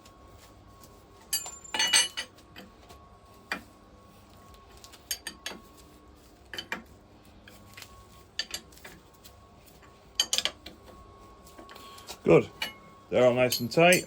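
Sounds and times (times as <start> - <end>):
spanner clinking on metal nuts: 1.3 - 2.3, 12.4 - 14.0.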